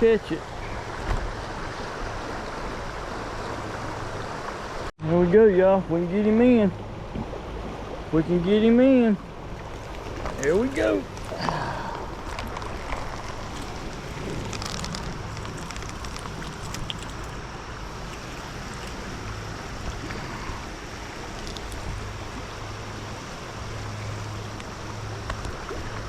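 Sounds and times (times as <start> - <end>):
stream water rushing over rocks: 9.0 - 26.0.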